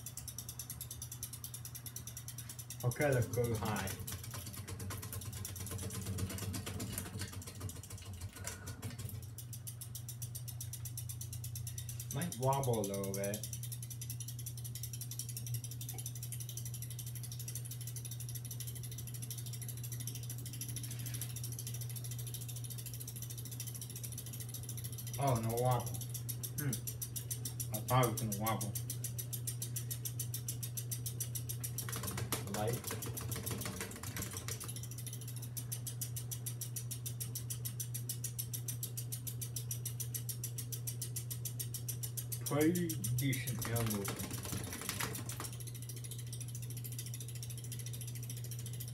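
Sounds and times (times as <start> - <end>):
ceiling fan motor hum: 0.0 - 48.9
fast even ticking: 0.0 - 48.9.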